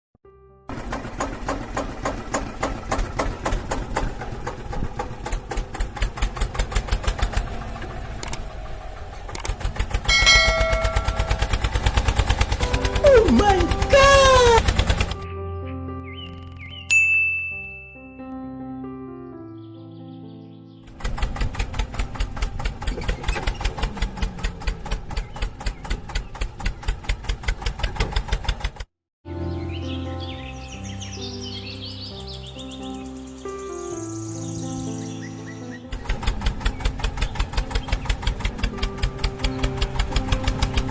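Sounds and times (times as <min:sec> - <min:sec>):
mini tractor engine chugging: 0:00.7 - 0:15.2, 0:20.9 - 0:28.9, 0:35.9 - 0:40.9.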